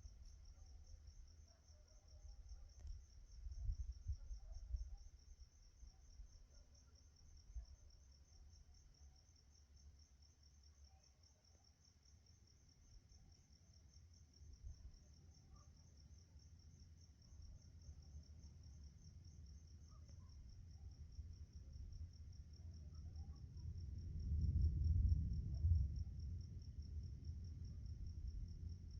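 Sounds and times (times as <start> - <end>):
crickets chirping: 0.0 - 28.9
faint low rumble: 17.0 - 28.9.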